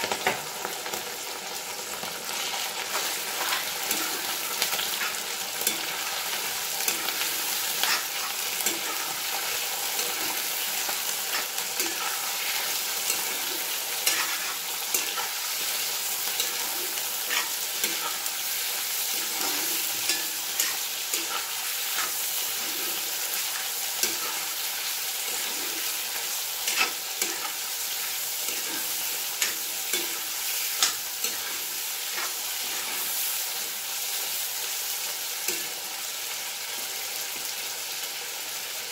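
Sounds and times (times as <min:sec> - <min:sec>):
food sizzling in hot oil: 0:00.0 - 0:38.9
steel spoon scraping and clinking pan: 0:02.9 - 0:18.4, 0:19.0 - 0:33.1.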